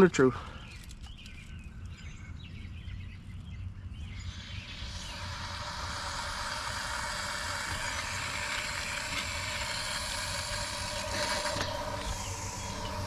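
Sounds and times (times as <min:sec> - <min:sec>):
water rushing through pipe: 0:04.2 - 0:13.0
engine idling: 0:04.8 - 0:13.0.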